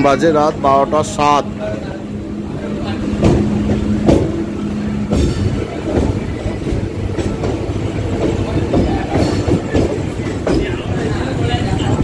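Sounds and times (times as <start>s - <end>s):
train wheels rumbling on rails: 0.0s - 12.0s
wheels clacking over rail joints: 2.6s - 12.0s.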